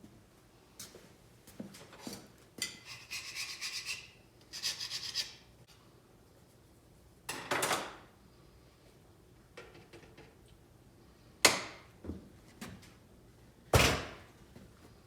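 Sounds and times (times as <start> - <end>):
filing strokes on metal: 2.8 - 5.4.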